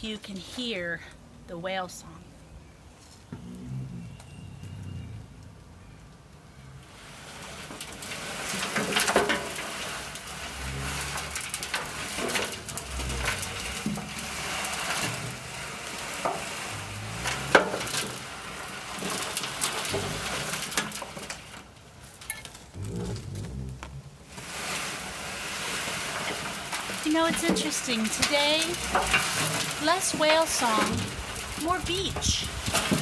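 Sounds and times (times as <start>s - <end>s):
compost tumbling in drum: 6.7s - 33.0s.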